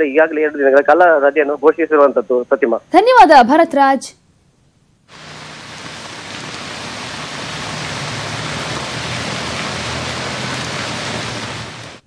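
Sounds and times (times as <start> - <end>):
heavy rain pouring: 5.1 - 12.0.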